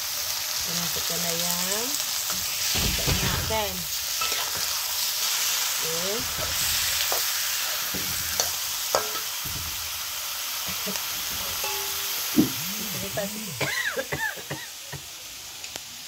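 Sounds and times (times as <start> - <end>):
chicken sizzling in hot oil: 0.0 - 16.0
metal spatula scraping a wok: 2.1 - 10.0.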